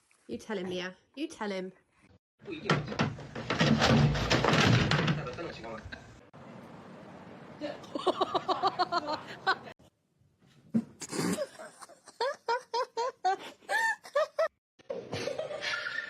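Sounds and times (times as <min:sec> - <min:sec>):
person laughing: 0:07.9 - 0:09.7.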